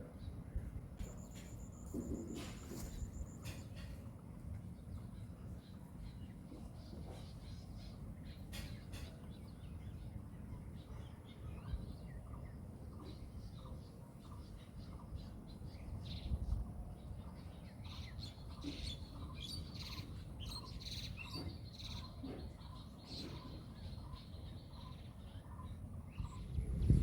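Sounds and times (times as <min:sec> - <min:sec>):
birds chirping and calling: 0:17.3 - 0:27.0.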